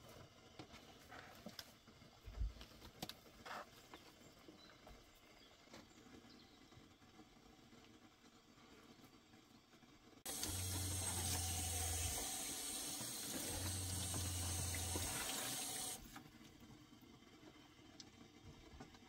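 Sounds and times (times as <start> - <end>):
water running: 10.3 - 16.2.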